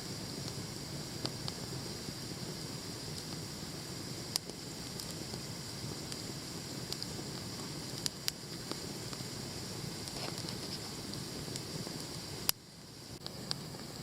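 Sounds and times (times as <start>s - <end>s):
campfire hissing and crackling: 0.0s - 14.0s
sharp fire pops: 0.0s - 14.0s.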